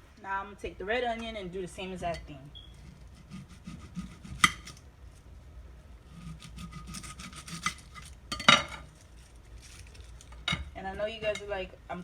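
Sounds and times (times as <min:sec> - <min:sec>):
knife sawing through onion: 0:02.8 - 0:04.8, 0:06.0 - 0:08.0.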